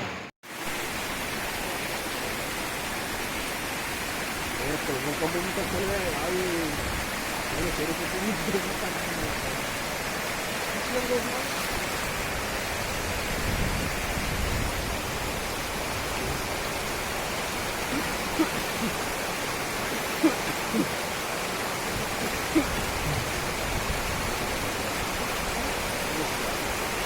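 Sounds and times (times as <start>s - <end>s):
rushing water from rain: 0.0s - 27.0s.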